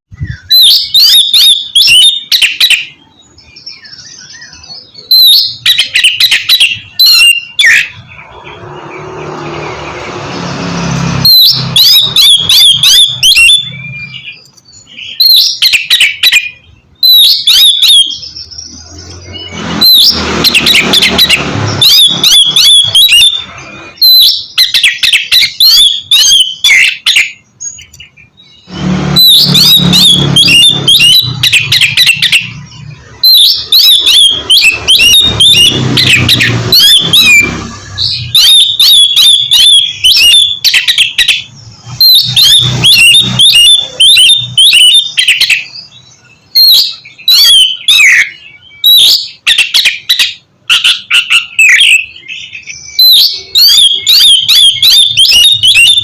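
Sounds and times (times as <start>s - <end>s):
bird singing whistles: 0.1s - 9.6s, 11.0s - 56.0s
rushing noise: 8.0s - 13.9s, 18.8s - 24.0s, 28.7s - 38.4s.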